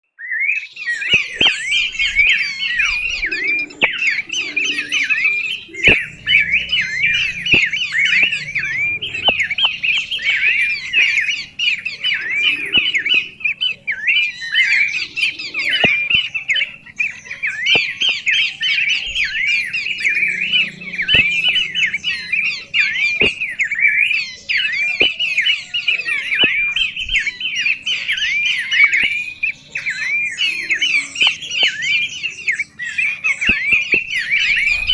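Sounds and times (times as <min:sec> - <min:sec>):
songbird singing: 0:00.0 - 0:34.9
sharp clicks: 0:04.9 - 0:13.7.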